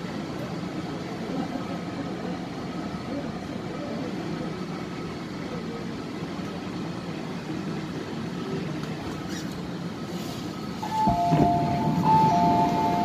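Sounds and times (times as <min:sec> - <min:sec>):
train running rumble: 0:08.0 - 0:13.0
door chime beeps: 0:10.8 - 0:13.0.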